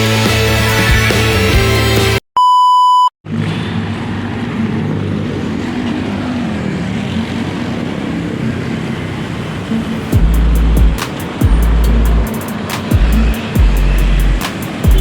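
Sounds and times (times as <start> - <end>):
background music: 0.0 - 2.2
electronic beep: 2.4 - 3.1
steady rushing noise: 3.9 - 15.0.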